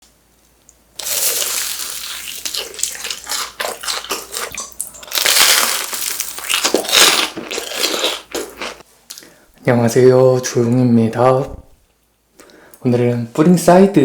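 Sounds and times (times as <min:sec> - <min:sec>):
crunching crisp snack food: 0:01.0 - 0:08.8.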